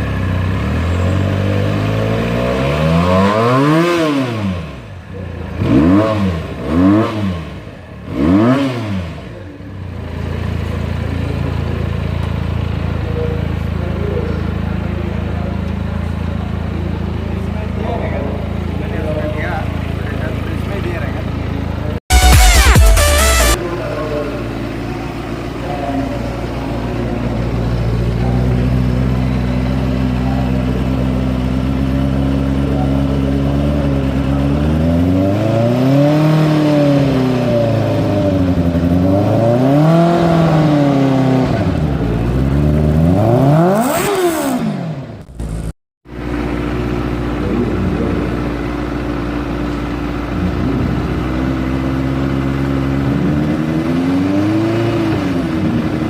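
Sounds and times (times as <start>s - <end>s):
engine idling and revving: 0.0s - 56.0s.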